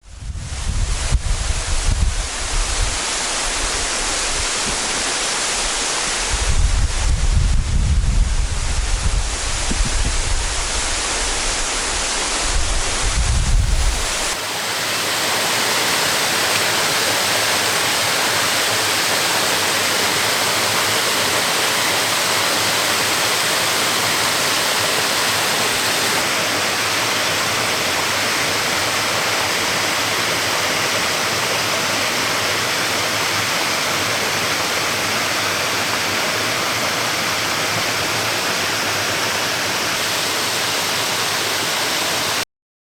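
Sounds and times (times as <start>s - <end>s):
wind buffeting microphone: 0.0s - 14.4s
waterfall rushing: 0.7s - 42.4s.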